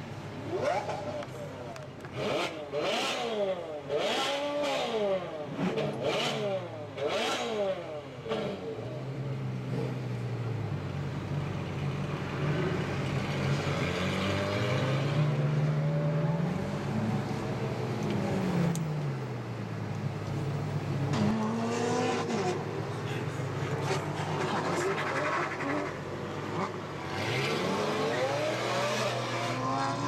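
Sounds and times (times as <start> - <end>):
sharp engine revs: 24.4 - 30.0.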